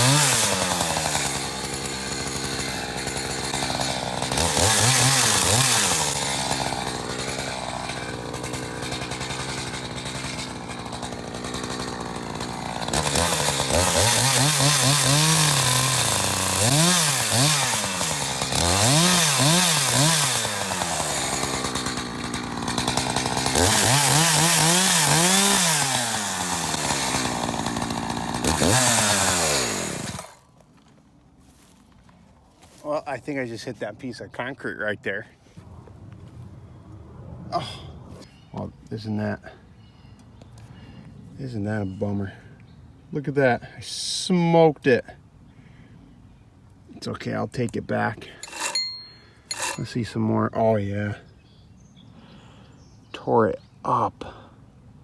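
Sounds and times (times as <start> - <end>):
chainsaw revving: 0.0 - 30.4, 47.0 - 51.2.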